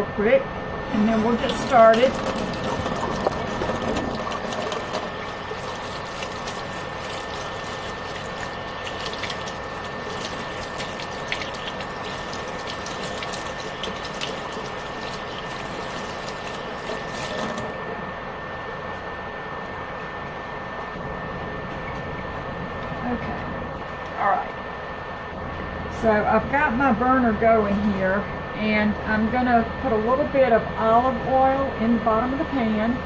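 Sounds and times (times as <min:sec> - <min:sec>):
cooling fan whining: 0:00.0 - 0:33.0
tap water running and splashing: 0:00.6 - 0:17.8.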